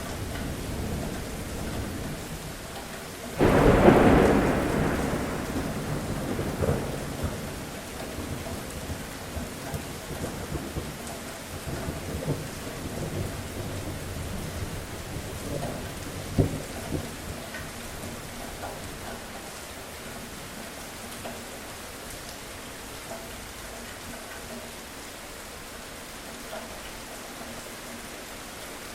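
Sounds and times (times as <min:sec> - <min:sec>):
steady rain falling: 0:00.0 - 0:28.9
thunder rumbling: 0:03.4 - 0:11.0.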